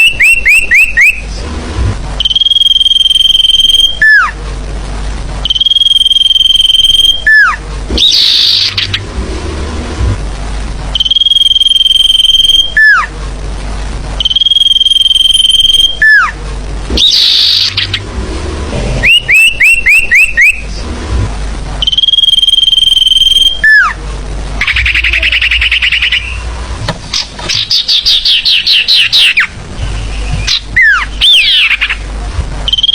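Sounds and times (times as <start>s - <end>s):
rising bird chirps: 5.5s - 9.1s, 16.9s - 20.8s, 24.6s - 32.0s
buzzy chattering bird calls: 7.0s - 9.1s, 17.0s - 18.1s, 18.9s - 20.7s, 24.6s - 32.1s
high whistle sliding down: 18.9s - 20.7s, 21.8s - 23.9s.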